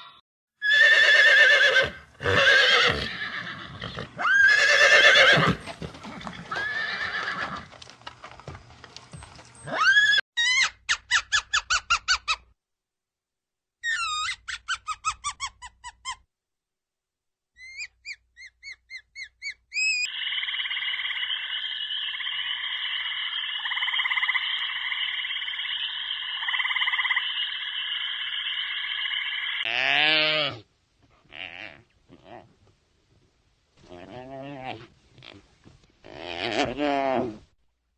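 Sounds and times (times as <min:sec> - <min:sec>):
quick repeated chirping calls: 0:17.6 - 0:29.6
dense chorus of animal calls: 0:19.8 - 0:30.4.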